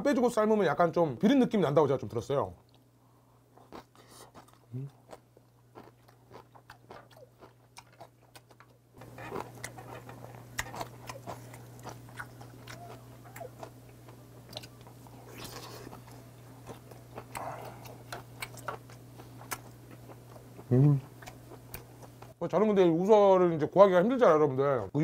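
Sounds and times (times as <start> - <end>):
wet chewing with mouth clicks: 3.6 - 22.4.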